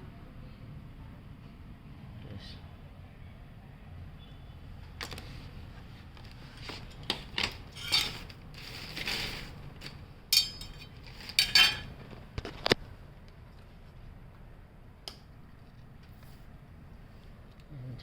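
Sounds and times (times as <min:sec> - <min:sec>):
metal tools clinking: 0:06.9 - 0:09.4, 0:10.3 - 0:11.9.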